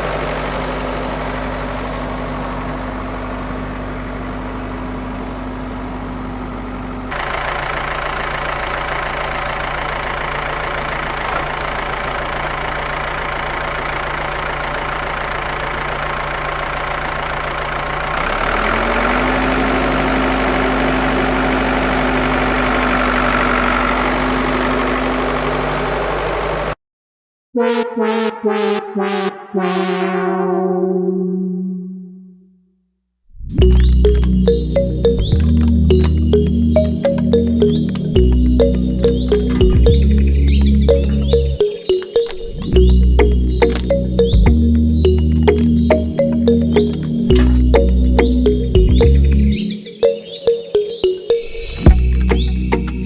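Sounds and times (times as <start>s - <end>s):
small engine running: 0.0s - 26.8s, 33.6s - 49.7s, 51.9s - 53.0s
synth music: 27.6s - 31.4s, 33.6s - 53.0s.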